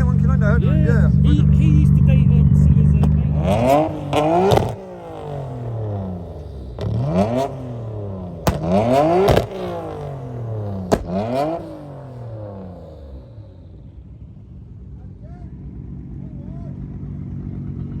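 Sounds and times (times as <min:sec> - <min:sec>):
exhaust bangs: 0:00.0 - 0:17.4
car engine revving: 0:00.0 - 0:18.0.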